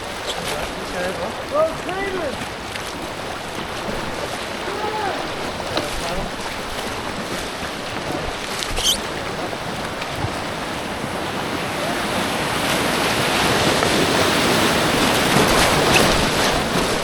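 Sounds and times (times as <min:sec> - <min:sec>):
fast creek water rushing: 0:00.0 - 0:17.0
brief high squeak: 0:08.6 - 0:09.1.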